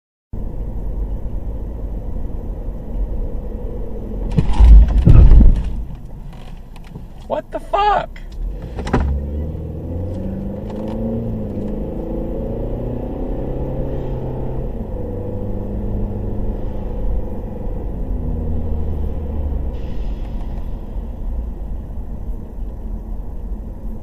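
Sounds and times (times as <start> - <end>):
car engine driving: 0.3 - 24.0.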